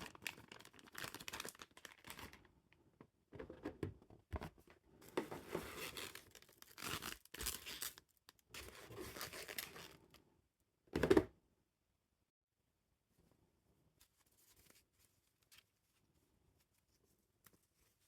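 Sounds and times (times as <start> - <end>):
cardboard packaging tearing and crinkling: 0.0 - 2.3, 5.4 - 8.0, 8.6 - 10.0.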